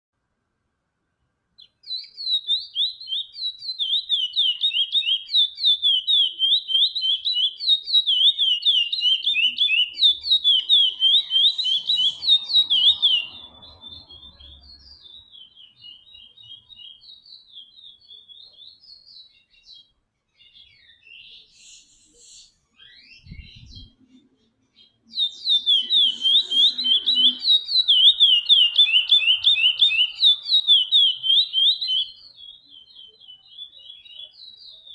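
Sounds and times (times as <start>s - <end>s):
finch singing whistled notes: 1.6s - 34.9s.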